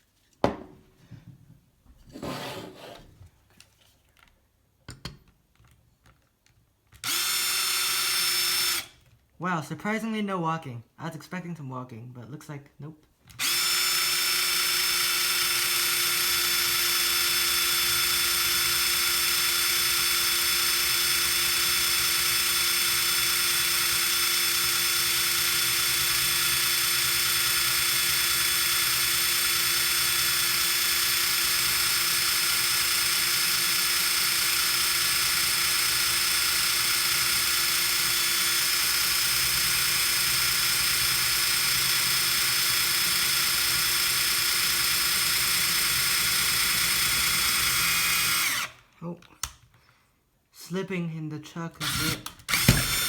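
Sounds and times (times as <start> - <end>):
power drill boring into steel: 7.0 - 8.9, 13.4 - 48.8, 51.8 - 53.0.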